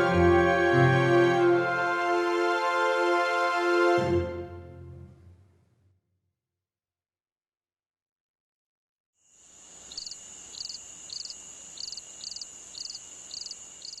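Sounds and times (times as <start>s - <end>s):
insect chirping: 9.2s - 14.0s.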